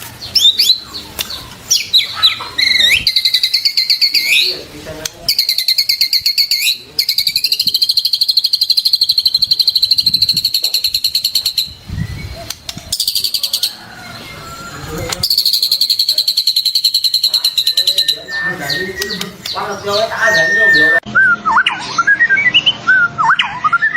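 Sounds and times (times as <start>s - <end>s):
bird song high chattering notes: 0.0s - 23.9s.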